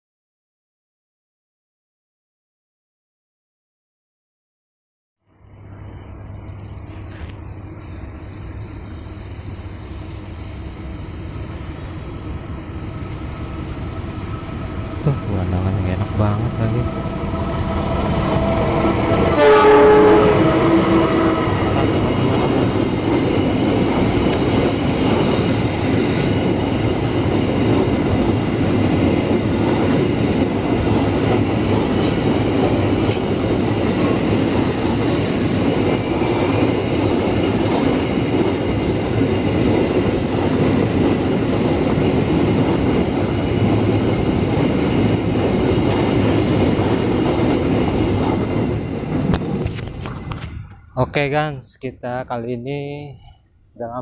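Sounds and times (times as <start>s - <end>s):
freight train rumbling on rails: 5.4s - 54.0s
train horn blast: 16.8s - 22.1s.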